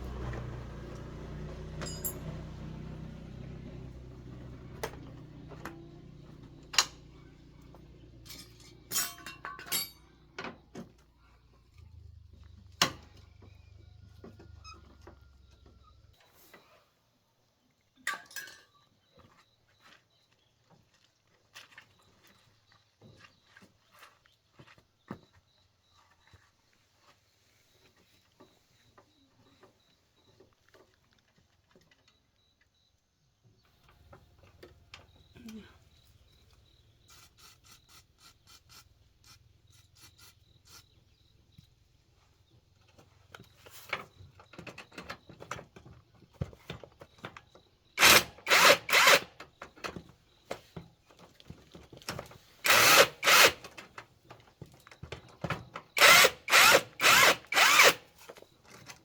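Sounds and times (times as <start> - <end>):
tools clicking and clattering: 1.8 - 2.4, 8.2 - 10.9, 18.0 - 18.8
power drill bursts: 48.0 - 49.4, 52.6 - 53.7, 56.0 - 58.2.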